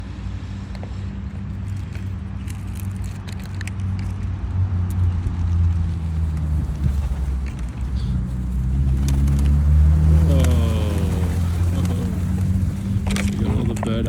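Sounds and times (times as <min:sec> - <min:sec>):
car engine idling: 0:05.3 - 0:14.0.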